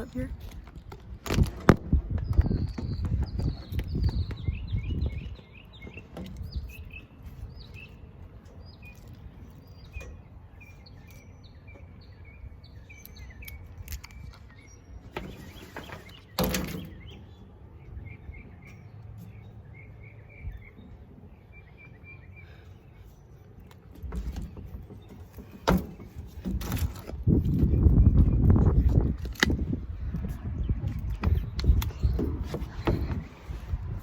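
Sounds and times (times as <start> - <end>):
small birds chirping: 2.1 - 34.0
rustle and thump: 14.0 - 17.2, 23.7 - 34.0.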